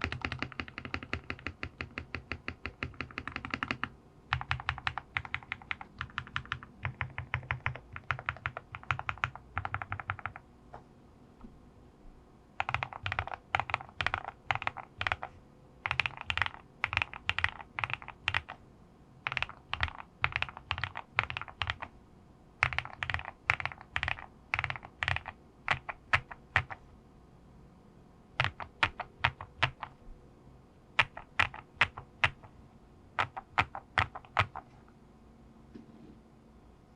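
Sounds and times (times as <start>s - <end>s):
mechanical keyboard typing: 0.0s - 10.4s, 12.6s - 18.6s, 19.2s - 21.9s, 22.6s - 26.8s, 28.4s - 30.0s, 31.0s - 32.5s, 33.2s - 34.7s.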